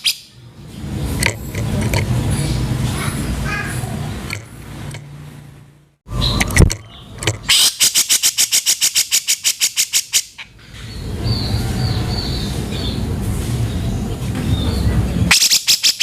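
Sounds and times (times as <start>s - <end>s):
bird harsh rattling call: 6.2s - 13.0s, 15.3s - 16.0s.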